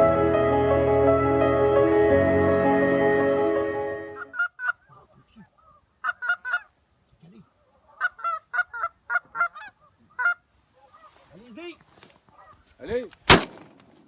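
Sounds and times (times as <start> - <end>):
geese honking: 4.1 - 6.7, 7.8 - 11.1.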